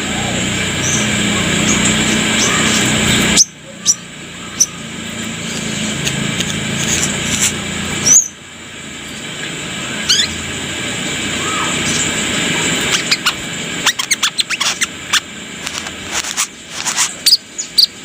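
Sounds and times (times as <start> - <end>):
bird squeaky chirps: 10.1 - 10.4, 12.9 - 15.3, 16.2 - 18.0.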